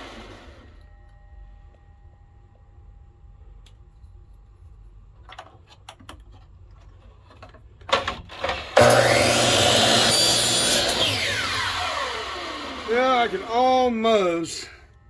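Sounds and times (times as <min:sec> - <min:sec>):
power saw cutting: 0:00.0 - 0:00.7, 0:08.4 - 0:14.0.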